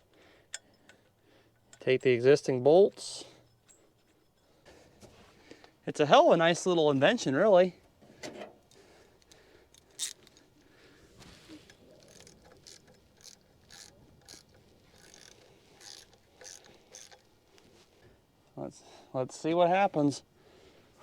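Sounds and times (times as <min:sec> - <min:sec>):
hand tools clicking and scraping: 0:00.4 - 0:02.2, 0:08.1 - 0:18.6.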